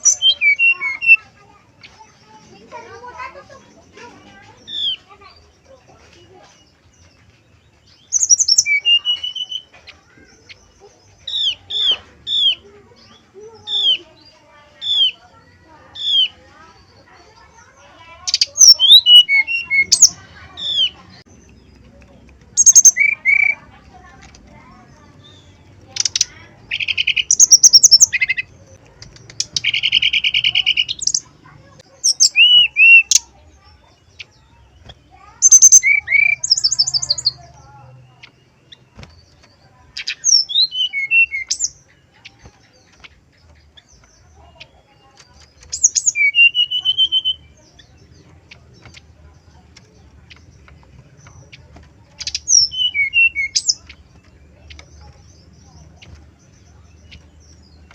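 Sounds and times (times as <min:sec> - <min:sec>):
bird singing whistles and trills: 0:00.0 - 0:01.3, 0:07.8 - 0:09.7, 0:18.3 - 0:21.7, 0:22.5 - 0:23.6, 0:32.0 - 0:33.4, 0:35.4 - 0:37.4, 0:40.0 - 0:42.8, 0:43.8 - 0:48.2, 0:52.2 - 0:57.9.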